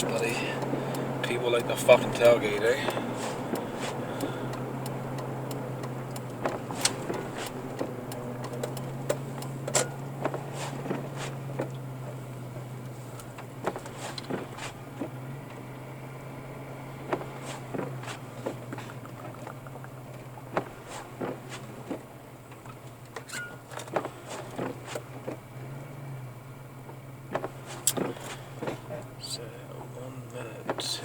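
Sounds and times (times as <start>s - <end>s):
car engine and tyres drone: 0.0s - 31.0s
light ticks and taps: 0.1s - 11.0s, 17.1s - 24.7s.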